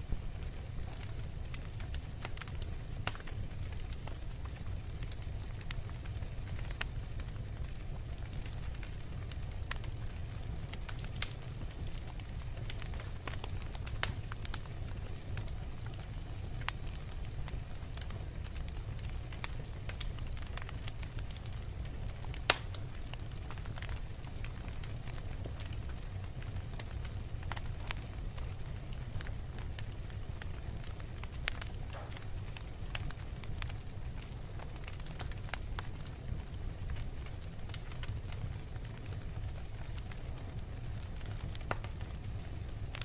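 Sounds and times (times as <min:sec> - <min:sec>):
fire rumbling: 0:00.0 - 0:43.0
wood crackling and snapping: 0:00.4 - 0:43.0
sharp pop from fire: 0:22.5 - 0:22.8, 0:31.9 - 0:32.3.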